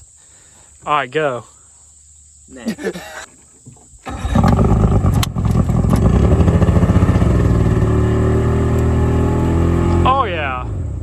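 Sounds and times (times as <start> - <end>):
jet boat motor running: 4.1 - 10.2.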